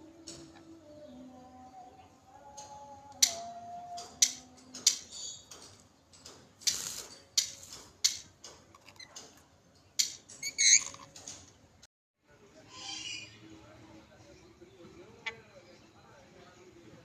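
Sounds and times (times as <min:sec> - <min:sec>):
faint background music: 0:00.0 - 0:17.0
high lorikeet chirp: 0:12.7 - 0:13.4.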